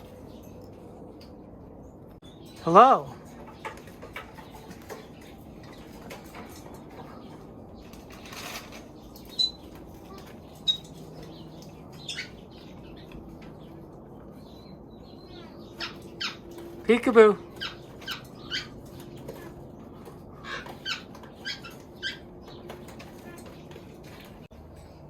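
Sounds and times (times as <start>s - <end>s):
wings fluttering: 3.4s - 13.8s.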